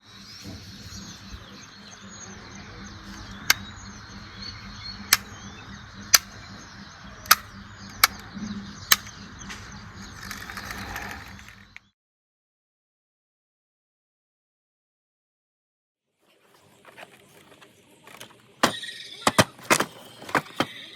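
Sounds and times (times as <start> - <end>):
small birds chirping: 0.0 - 11.9
low outdoor background: 0.0 - 12.0
sharp clicks: 4.9 - 11.9.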